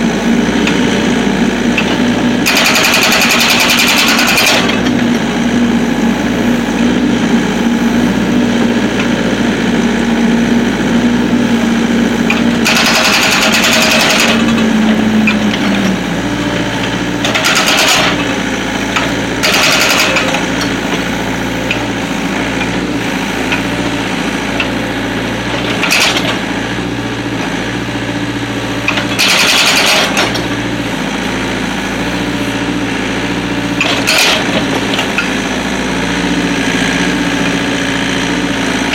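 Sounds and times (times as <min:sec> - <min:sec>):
diesel engine running: 0:00.0 - 0:38.9
hydraulic breaker hammering: 0:00.1 - 0:05.4, 0:11.9 - 0:27.9, 0:28.8 - 0:31.1, 0:33.7 - 0:36.3.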